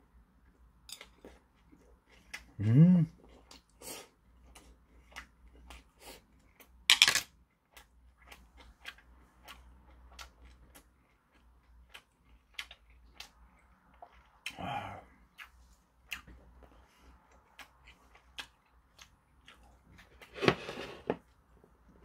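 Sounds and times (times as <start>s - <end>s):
chewing with wet mouth clicks: 7.6s - 14.6s, 15.2s - 20.1s.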